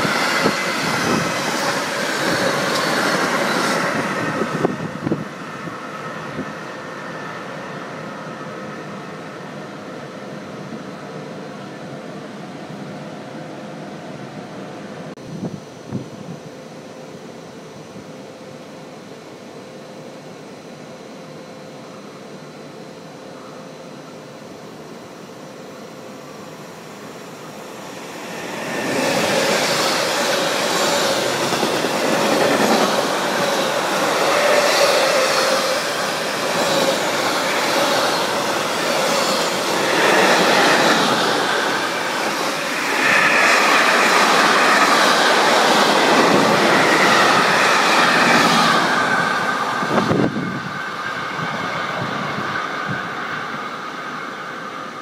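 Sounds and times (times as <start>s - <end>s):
freight train rattling over rails: 0.0s - 13.1s, 26.2s - 55.0s.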